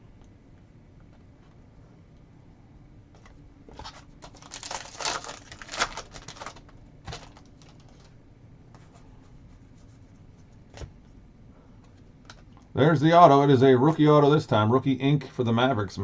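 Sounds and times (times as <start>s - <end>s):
wrapper being torn and crinkled: 3.9s - 8.1s.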